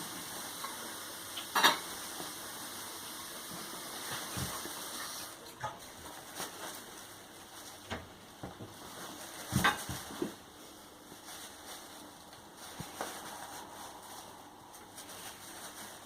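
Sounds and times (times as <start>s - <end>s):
cat rustling in a bag: 3.4s - 16.0s.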